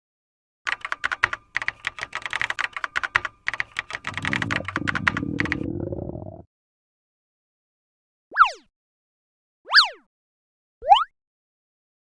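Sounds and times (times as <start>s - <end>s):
computer keyboard typing: 0.7s - 6.2s.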